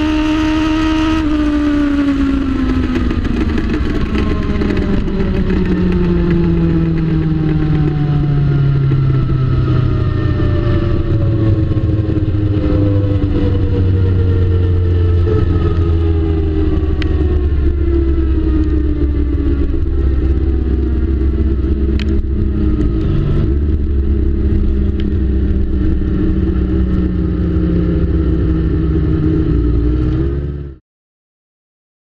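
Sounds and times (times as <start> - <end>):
motorcycle engine running: 0.0 - 30.8.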